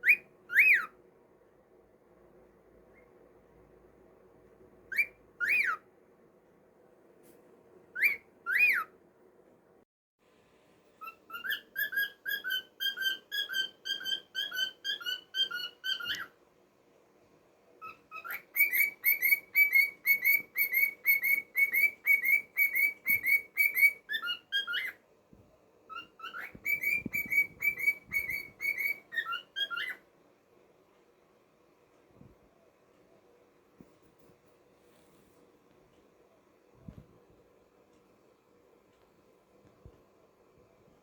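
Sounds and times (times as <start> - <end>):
cockatiel whistling: 0.0 - 1.0, 4.9 - 5.8, 7.9 - 8.9, 11.0 - 16.3, 17.8 - 25.0, 25.9 - 30.0.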